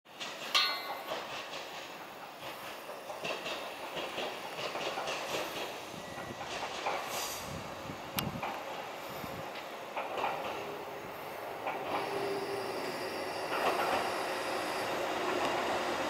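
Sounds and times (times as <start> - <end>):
wheels clicking over rail joints: 0.1 - 5.8, 6.4 - 7.2, 9.5 - 10.8, 11.6 - 12.6, 13.4 - 14.1
sharp metallic clank: 0.4 - 1.4.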